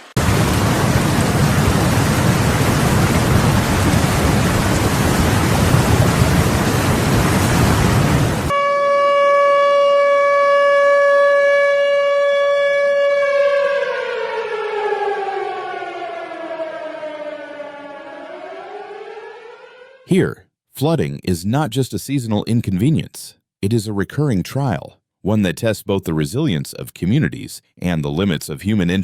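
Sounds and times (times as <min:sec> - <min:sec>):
heavy rain: 0:00.0 - 0:08.5
warning siren: 0:00.0 - 0:20.1.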